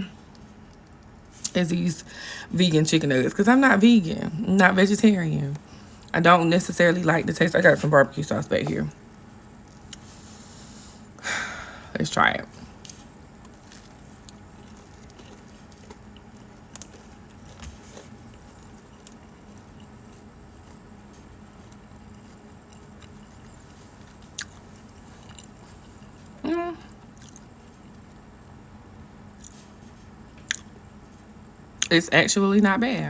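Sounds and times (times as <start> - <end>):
person quietly chewing: 9.6 - 10.4, 12.8 - 28.2, 29.4 - 31.2
person humming mm: 26.4 - 26.9.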